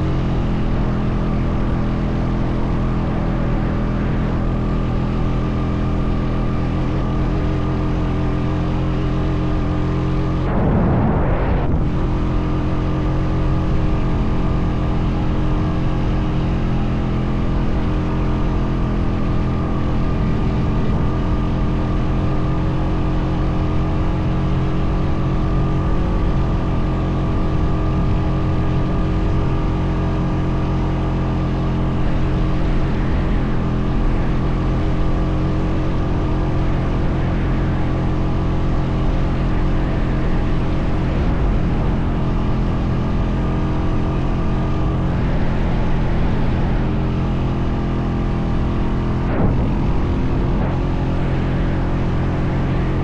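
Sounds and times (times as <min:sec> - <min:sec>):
atv engine running: 0:00.0 - 0:53.0
brief rush of noise: 0:10.4 - 0:12.4.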